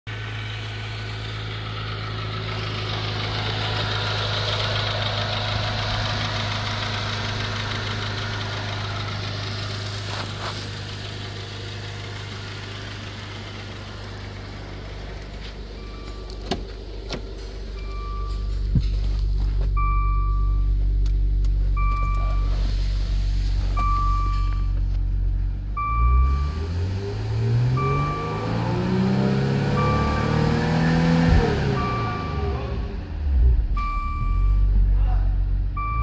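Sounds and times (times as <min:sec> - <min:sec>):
car engine idling: 0:00.1 - 0:36.0
short electronic beeps: 0:17.8 - 0:18.6, 0:19.8 - 0:20.8, 0:21.8 - 0:22.7, 0:23.8 - 0:24.8, 0:27.7 - 0:28.6, 0:29.7 - 0:30.5, 0:31.3 - 0:32.6, 0:33.8 - 0:34.7, 0:35.8 - 0:36.0.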